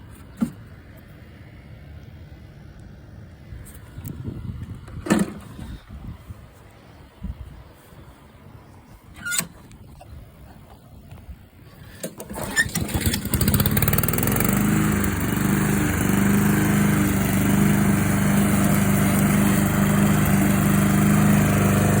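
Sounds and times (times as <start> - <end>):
lawn mower engine starting and running: 11.8 - 22.0.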